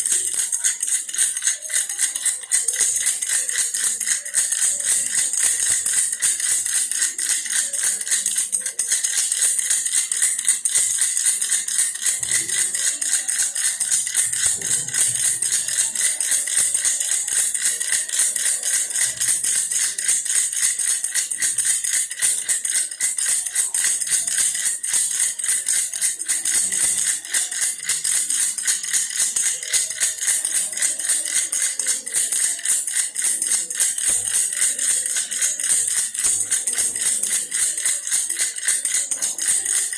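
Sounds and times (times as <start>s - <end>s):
toy rattle shaken: 0.0s - 39.9s.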